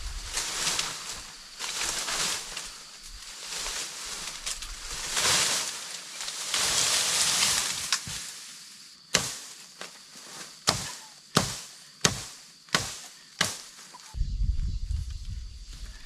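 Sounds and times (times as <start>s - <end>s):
chopping blows: 9.1s - 9.9s, 10.6s - 13.9s.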